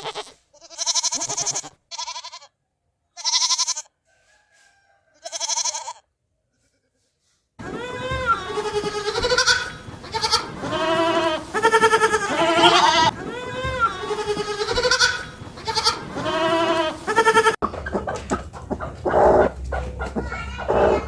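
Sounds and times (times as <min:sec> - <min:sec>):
goats bleating: 0:00.0 - 0:02.5, 0:03.2 - 0:03.9, 0:05.2 - 0:06.0, 0:07.6 - 0:17.6.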